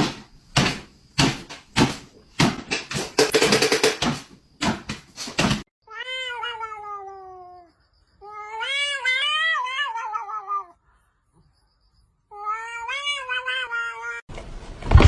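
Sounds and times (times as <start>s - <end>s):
cat yowling: 5.9s - 10.8s, 12.3s - 14.3s.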